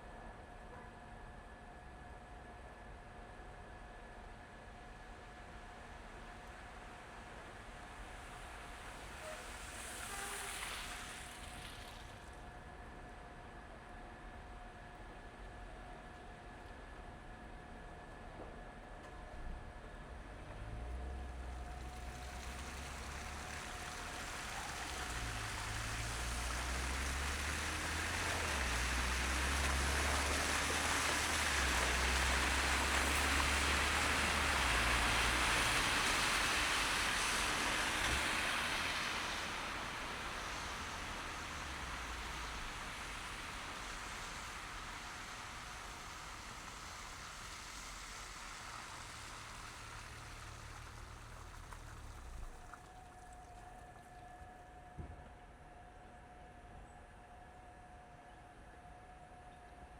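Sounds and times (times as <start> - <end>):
tyres hissing on wet road: 5.0 - 12.5, 20.1 - 53.6
low traffic rumble: 18.8 - 58.0.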